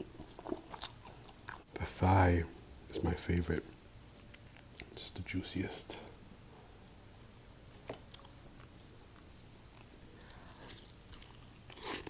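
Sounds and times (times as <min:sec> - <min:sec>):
person chewing food: 0:00.0 - 0:01.7, 0:03.9 - 0:05.0, 0:06.7 - 0:12.0.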